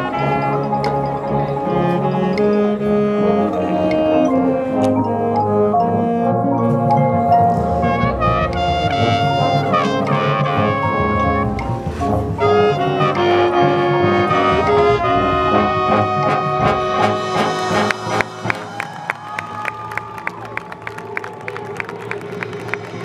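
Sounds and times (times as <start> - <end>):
marching band brass: 0.0 - 23.0
crowd clapping and cheering: 16.6 - 23.0.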